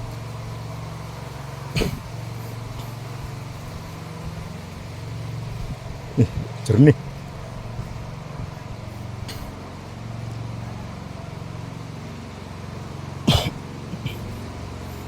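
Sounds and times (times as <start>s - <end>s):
low motor hum: 0.0s - 15.0s
sharp cough-like sound: 1.8s - 2.0s, 13.3s - 14.4s.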